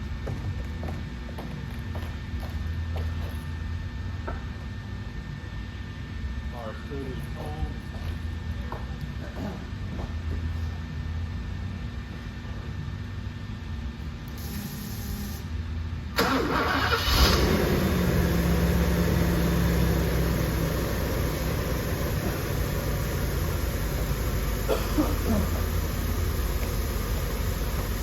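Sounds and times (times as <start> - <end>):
car engine starting and idling: 16.1 - 28.0.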